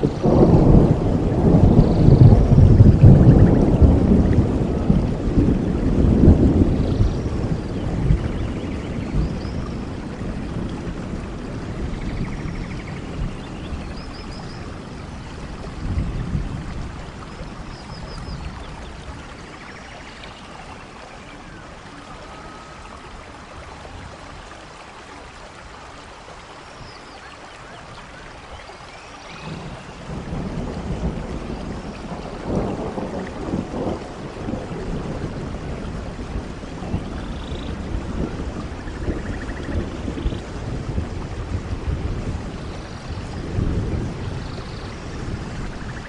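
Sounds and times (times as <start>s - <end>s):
rolling thunder: 0.0s - 19.7s, 29.3s - 46.0s
rainfall: 0.0s - 46.0s.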